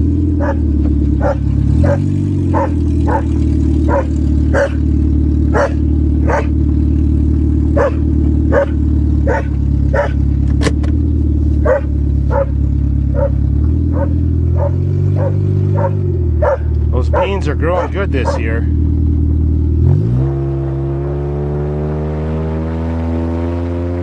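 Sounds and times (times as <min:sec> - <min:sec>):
engine running: 0:00.0 - 0:24.0
dog barking: 0:00.4 - 0:00.6, 0:01.2 - 0:04.8, 0:05.5 - 0:06.6, 0:07.8 - 0:10.2, 0:11.6 - 0:18.6.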